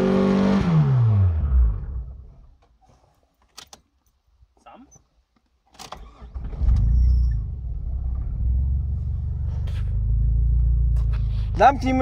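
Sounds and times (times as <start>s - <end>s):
car engine cranking and idling: 5.7s - 12.0s.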